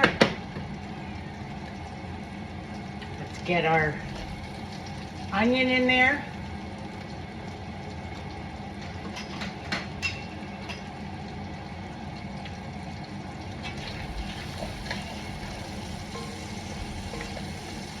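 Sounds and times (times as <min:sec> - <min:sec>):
onion sizzling in hot oil: 0:01.5 - 0:08.5, 0:13.6 - 0:18.0.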